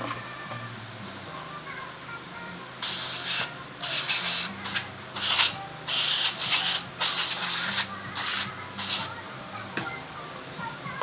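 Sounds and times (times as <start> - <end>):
background music: 0.0 - 11.0
hissing rubbing on tyre: 2.8 - 9.2.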